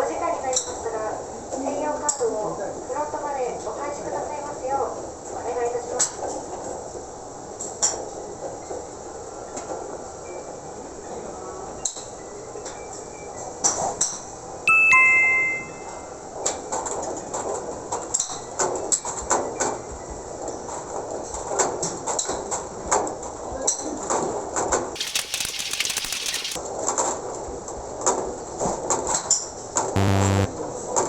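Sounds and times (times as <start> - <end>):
two-note public-address chime: 14.7 - 16.0.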